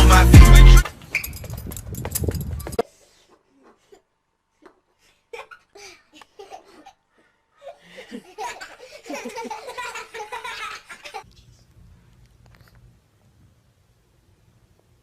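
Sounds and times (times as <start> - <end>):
people laughing hard: 7.9 - 11.2.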